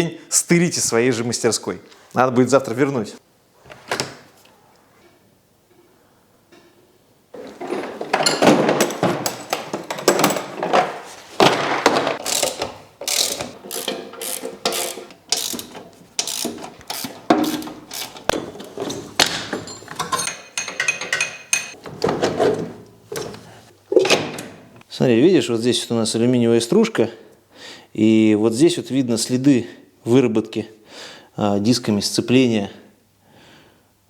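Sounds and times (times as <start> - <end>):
ratchet wrench clicking: 12.2 - 18.3.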